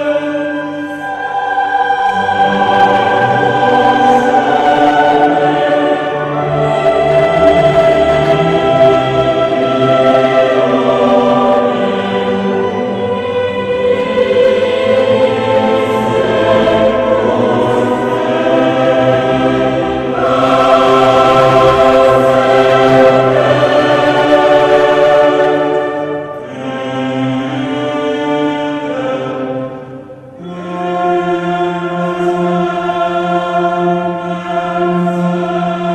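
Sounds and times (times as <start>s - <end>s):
choir singing sustained chords: 0.0s - 35.9s.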